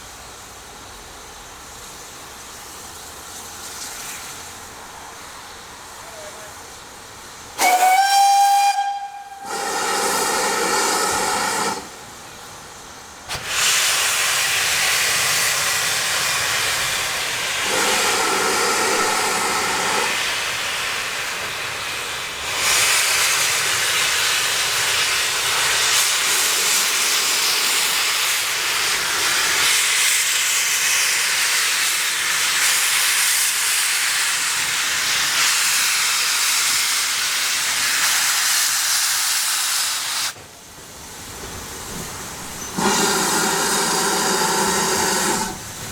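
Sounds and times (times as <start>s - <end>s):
steam hissing: 0.0s - 45.9s
steam locomotive whistle: 7.6s - 12.0s, 42.6s - 45.6s.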